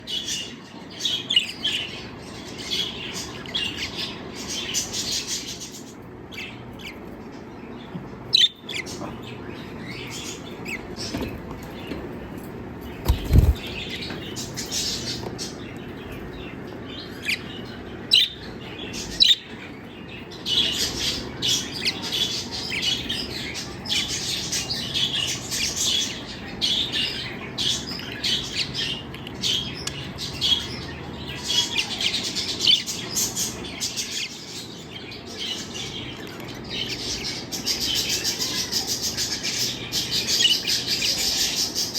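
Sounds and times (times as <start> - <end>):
lovebirds chirping: 0.0 - 41.9
sharp thumps: 13.0 - 13.7.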